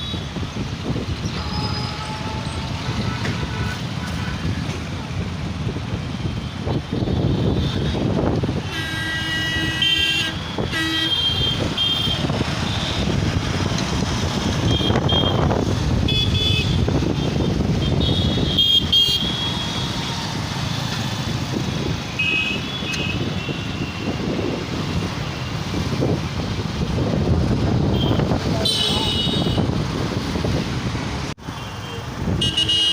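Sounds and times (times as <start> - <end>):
traffic engines rumbling: 0.0 - 32.9
vehicle horns honking: 1.3 - 4.6, 8.6 - 13.2, 14.6 - 20.0, 27.9 - 29.7, 31.5 - 32.9.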